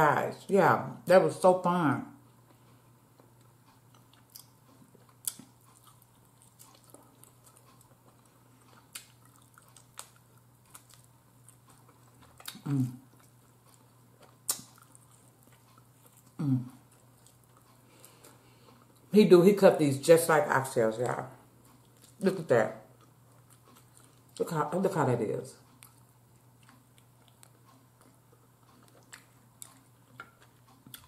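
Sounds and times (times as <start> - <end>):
chewing with mouth clicks: 2.3 - 19.1, 21.6 - 24.5, 25.6 - 31.0
person humming: 16.4 - 16.8.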